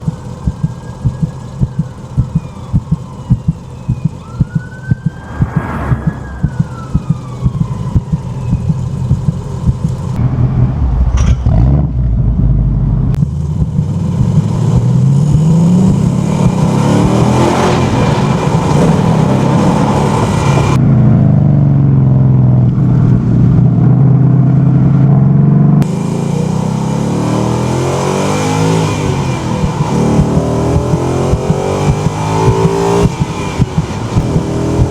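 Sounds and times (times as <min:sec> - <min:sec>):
ambulance siren wailing: 0:00.0 - 0:09.8
car engine revving: 0:00.0 - 0:34.9.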